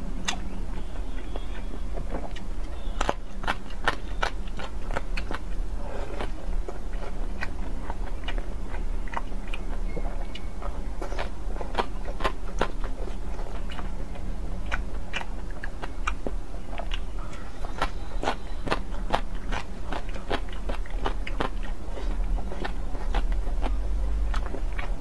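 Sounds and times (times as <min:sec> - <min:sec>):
crisp clicks and mouth smacks: 0:00.2 - 0:00.5, 0:06.2 - 0:25.0
person chewing food: 0:00.2 - 0:25.0.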